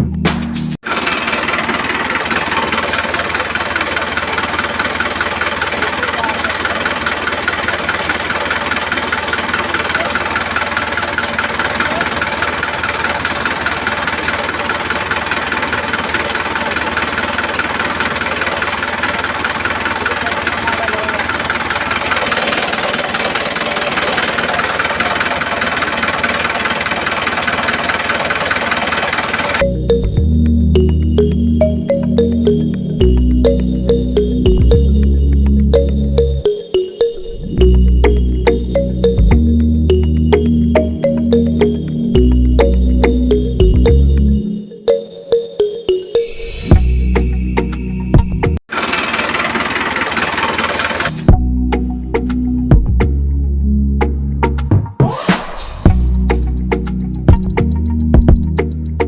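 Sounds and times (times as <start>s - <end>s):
music: 0.0s - 0.8s, 29.6s - 48.6s, 51.3s - 59.0s
small motor clattering: 0.8s - 29.6s, 48.7s - 51.3s
engine knocking steadily: 0.8s - 29.9s, 48.2s - 51.4s, 55.9s - 59.0s.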